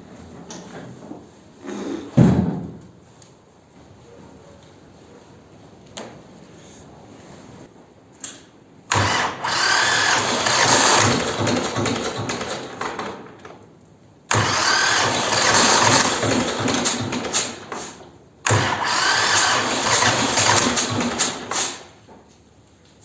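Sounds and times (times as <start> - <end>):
tractor engine cranking: 8.9 - 13.7, 14.3 - 22.0.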